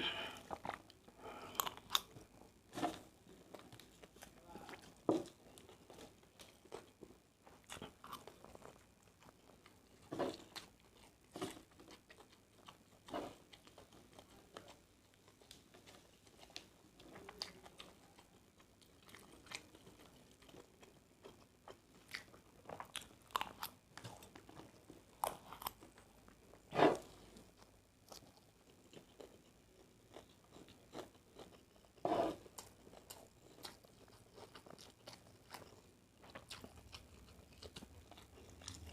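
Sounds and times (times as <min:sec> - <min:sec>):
person chewing and biting: 0:18.9 - 0:26.0, 0:30.1 - 0:38.9.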